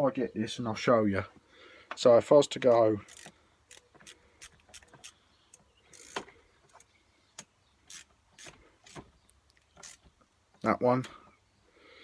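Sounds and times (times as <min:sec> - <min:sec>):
hand tool clicking on bolts: 0:02.6 - 0:09.0, 0:09.8 - 0:10.1.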